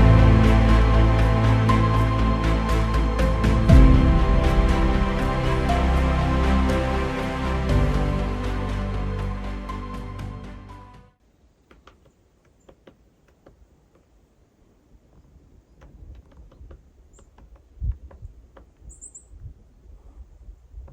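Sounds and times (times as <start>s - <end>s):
background music: 0.0s - 11.2s.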